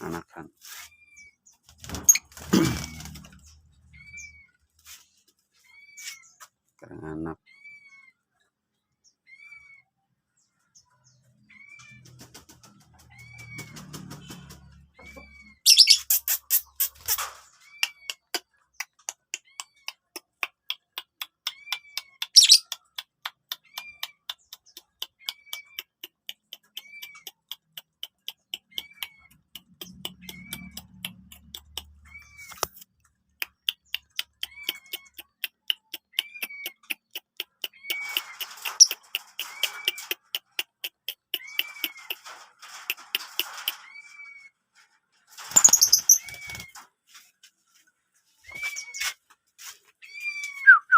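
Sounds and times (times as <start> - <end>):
bird chirping: 5.6 - 20.0, 21.4 - 32.8, 33.4 - 44.4, 45.4 - 46.8
rapid sharp ticks: 16.0 - 43.8.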